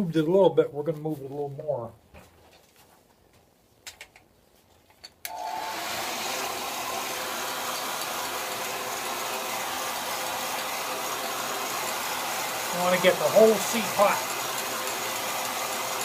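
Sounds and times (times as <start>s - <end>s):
hot-air blower hissing: 5.3s - 16.0s.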